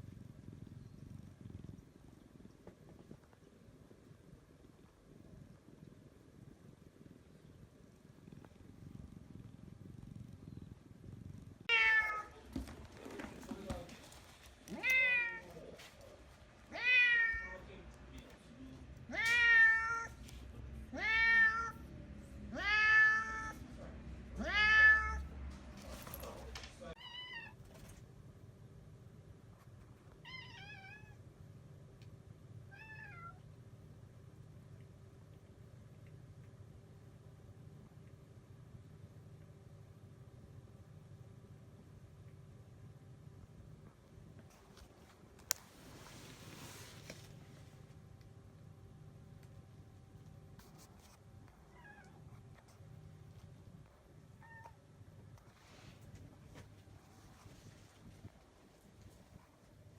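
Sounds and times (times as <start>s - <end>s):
cat purring: 0.0s - 26.8s, 33.5s - 51.2s
cat meowing: 11.7s - 12.4s, 14.7s - 15.5s, 16.7s - 17.6s, 19.1s - 20.2s, 20.9s - 21.8s, 22.5s - 23.6s, 24.4s - 25.3s, 27.0s - 27.6s, 30.2s - 31.2s, 32.7s - 33.4s.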